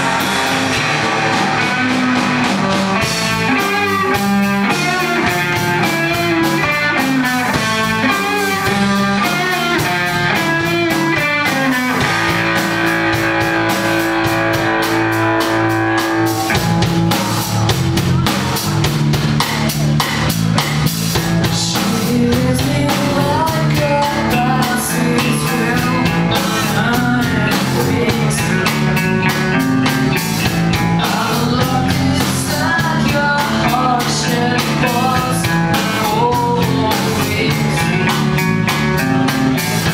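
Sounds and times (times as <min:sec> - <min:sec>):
rock music with guitar and drums: 0:00.0 - 0:39.9.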